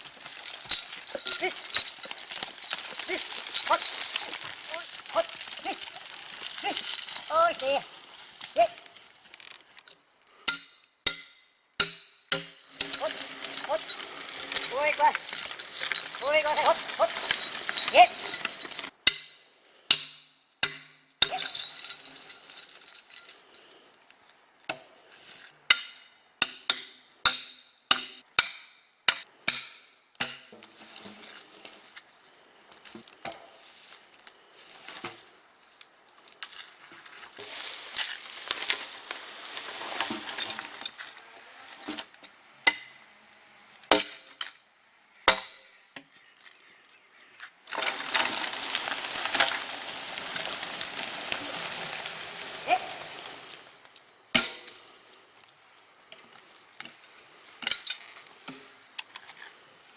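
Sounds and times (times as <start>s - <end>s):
sharp ringing knocks and clinks: 0.3s - 9.1s, 10.5s - 23.8s, 54.3s - 55.1s.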